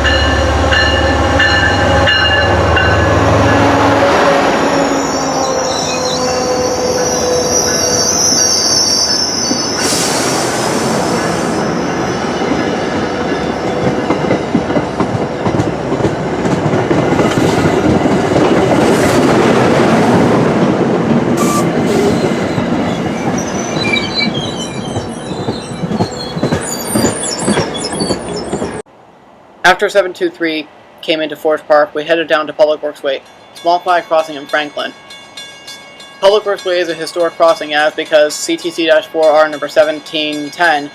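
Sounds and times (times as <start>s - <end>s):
high-pitched wheel squeal: 4.6s - 10.4s, 21.4s - 28.8s
train wheels clattering over rails: 12.4s - 20.1s, 21.4s - 28.8s.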